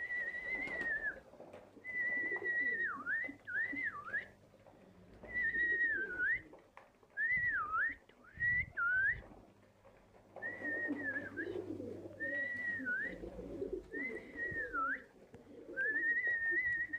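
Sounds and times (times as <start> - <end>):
birds whistling: 10.4 - 15.0
low warbling cooing: 10.4 - 16.9.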